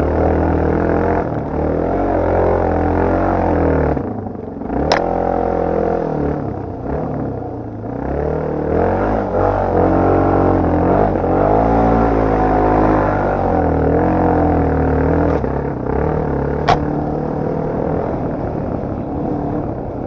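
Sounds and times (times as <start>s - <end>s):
motorcycle engine revving: 0.0s - 20.0s
sharp knock: 16.6s - 17.0s.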